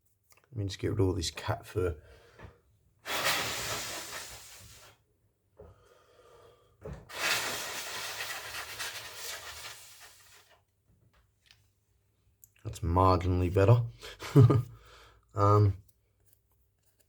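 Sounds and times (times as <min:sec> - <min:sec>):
person blowing hard: 0:03.0 - 0:05.0, 0:07.1 - 0:10.4.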